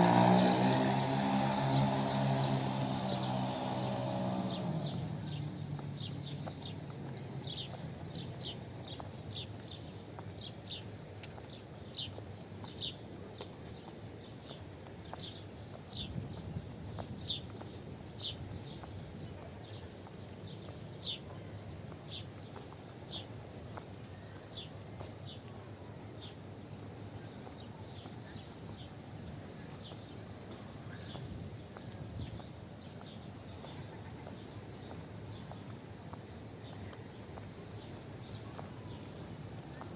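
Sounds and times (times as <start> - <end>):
birds chirping: 0.0 - 9.4
low outdoor background murmur: 0.0 - 39.9.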